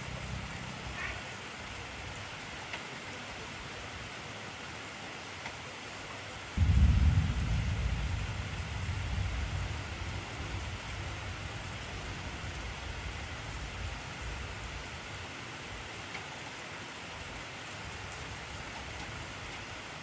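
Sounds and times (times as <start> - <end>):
heavy rain hiss: 0.0 - 20.0
thunder rumble: 6.6 - 15.0.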